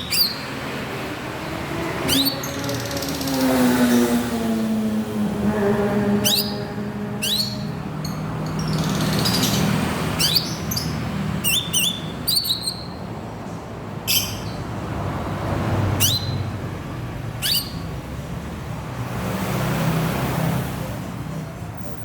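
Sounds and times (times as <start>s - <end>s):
bird whistled calls: 0.0s - 0.5s, 2.1s - 3.4s, 6.2s - 13.0s, 16.0s - 16.4s, 17.4s - 17.9s.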